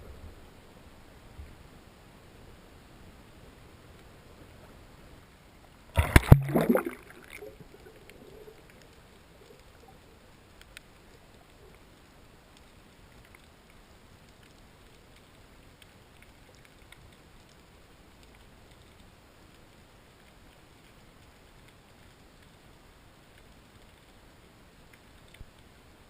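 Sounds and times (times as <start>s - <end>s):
water splashing and sloshing: 5.9s - 12.0s.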